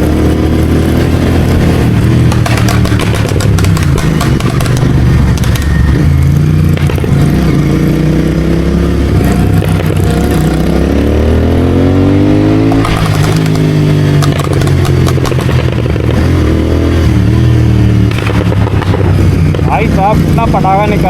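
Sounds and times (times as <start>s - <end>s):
motorcycle engine accelerating: 0.0s - 21.0s
sharp exhaust pops: 1.8s - 5.8s, 6.7s - 7.3s, 12.7s - 16.3s, 18.0s - 20.1s.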